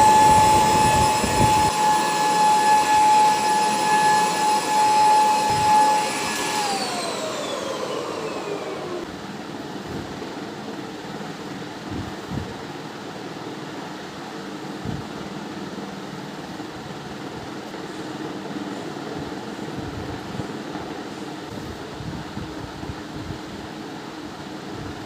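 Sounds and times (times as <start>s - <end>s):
electric appliance motor whining: 0.0s - 9.2s.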